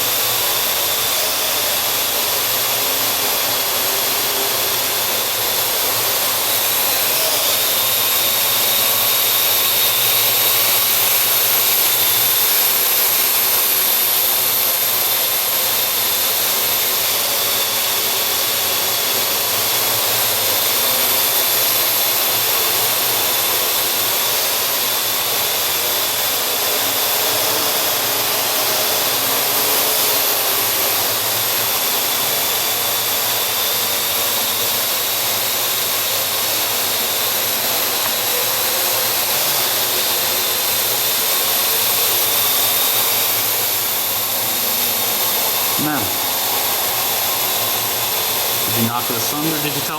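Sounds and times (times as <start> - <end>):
quadcopter propellers whining: 0.0 - 49.9.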